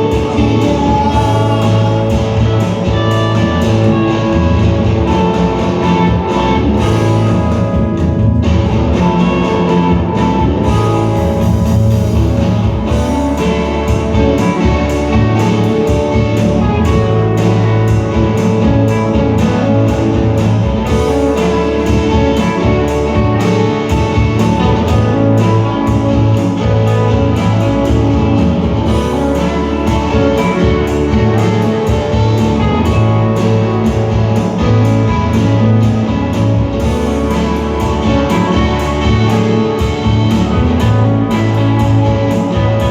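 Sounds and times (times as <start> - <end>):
rock band playing live: 0.0 - 42.9.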